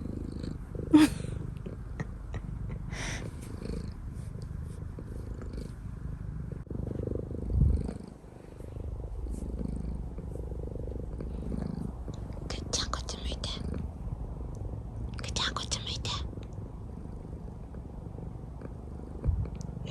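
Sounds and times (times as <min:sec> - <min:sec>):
cat purring: 0:00.0 - 0:19.9.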